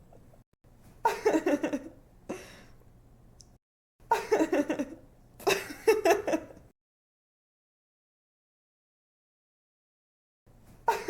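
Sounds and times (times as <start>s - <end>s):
young woman giggling: 1.0s - 2.6s, 4.1s - 6.6s.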